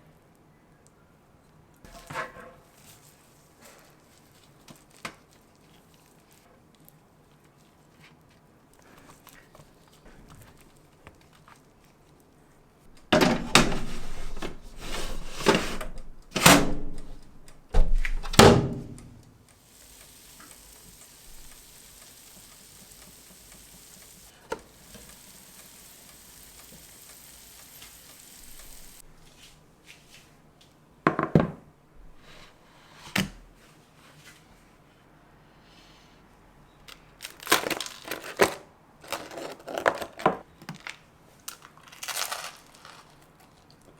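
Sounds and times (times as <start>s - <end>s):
kitchen knocks and thunks: 13.1s - 19.0s, 31.1s - 31.6s
steady hiss: 19.5s - 29.3s.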